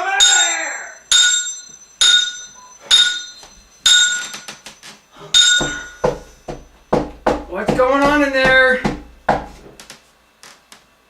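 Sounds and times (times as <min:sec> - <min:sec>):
hard object striking metal: 0:05.3 - 0:09.6.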